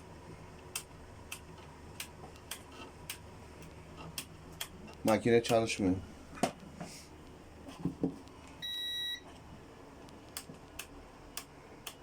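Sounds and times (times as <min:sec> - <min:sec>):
electronic beep: 0:08.6 - 0:09.2.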